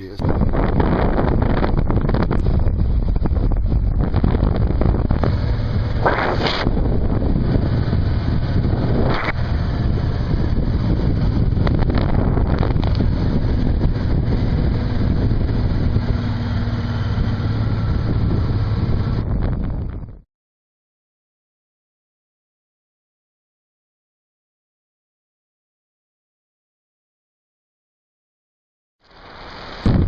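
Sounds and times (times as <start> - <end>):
wind buffeting microphone: 0.0 - 20.2.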